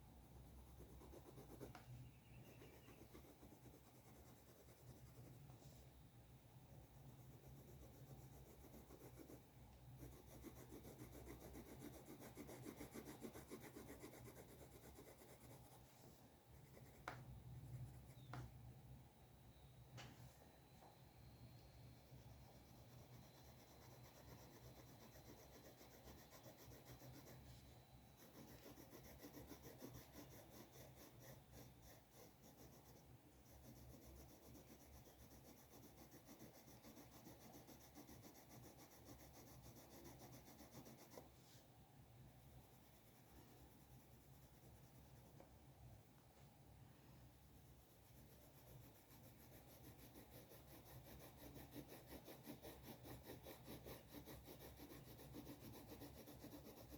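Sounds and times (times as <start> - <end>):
drawing tool scratching paper: 0.2 - 5.8, 6.8 - 15.9, 22.1 - 41.5, 47.6 - 56.9.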